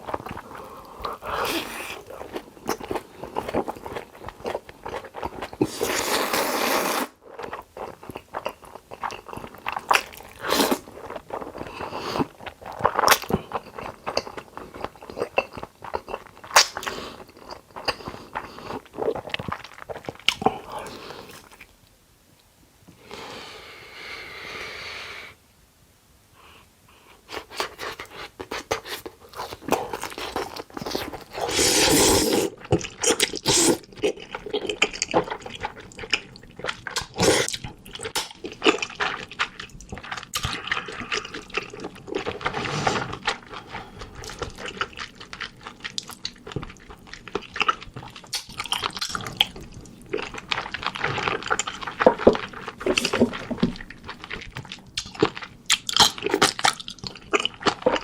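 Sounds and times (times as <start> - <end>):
noodles slurping and chewing: 0.0 - 21.7, 27.3 - 58.0.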